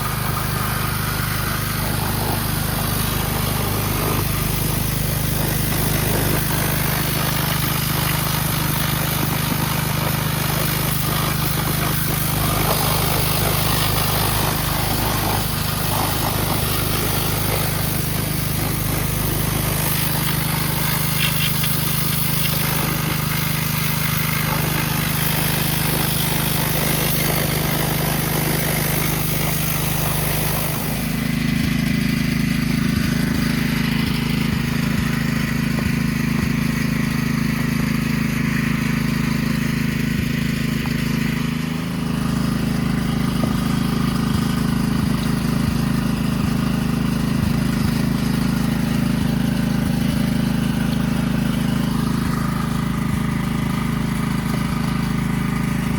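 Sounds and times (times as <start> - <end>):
dirt bike engine running: 0.0 - 55.9.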